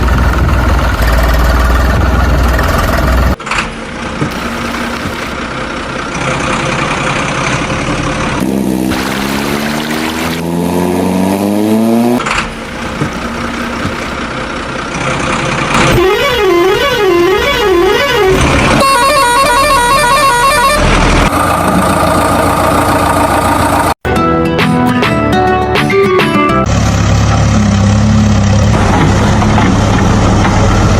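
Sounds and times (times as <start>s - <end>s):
engine running and revving: 0.0s - 18.9s, 19.7s - 24.0s, 26.6s - 30.9s
steady horn blast: 15.9s - 20.9s
warbling horn: 15.9s - 20.9s.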